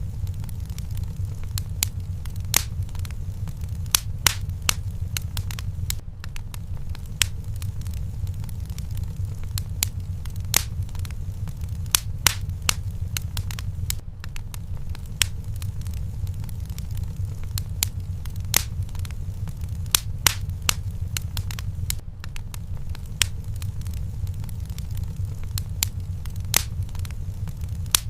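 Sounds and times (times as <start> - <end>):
fire popping: 0.0 - 28.0
low fire rumble: 0.0 - 28.0
wood fire crackling: 0.0 - 28.0.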